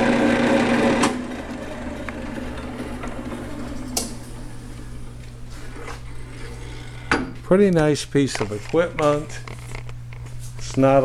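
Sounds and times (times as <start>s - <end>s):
drill press motor running: 0.0s - 7.5s
low steady hum: 1.0s - 11.0s.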